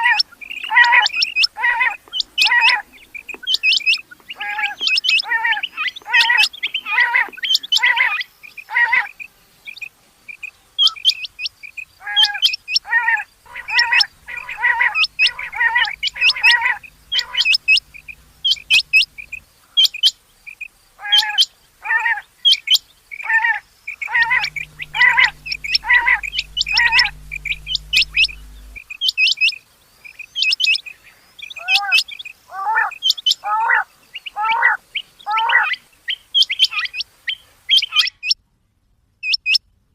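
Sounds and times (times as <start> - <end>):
quail chirping calls: 12.0 - 19.4.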